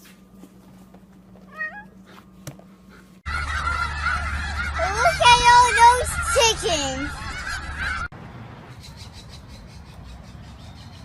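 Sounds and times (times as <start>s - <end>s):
geese honking: 3.3s - 8.1s.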